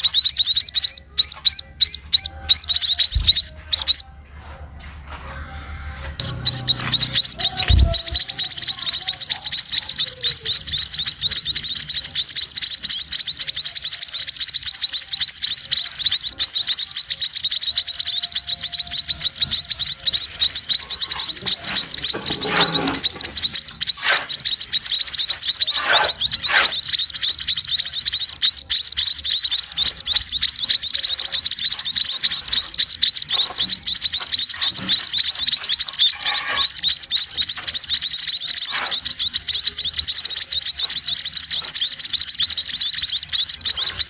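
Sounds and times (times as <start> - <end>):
chicks cheeping: 0.0 - 44.0
dull low thumps: 6.1 - 8.4.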